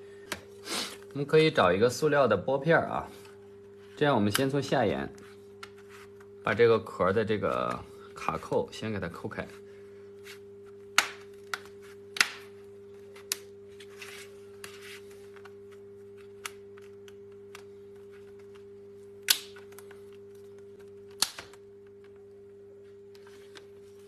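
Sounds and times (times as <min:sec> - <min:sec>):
plastic clips snapping: 0:19.2 - 0:20.0, 0:21.1 - 0:21.6.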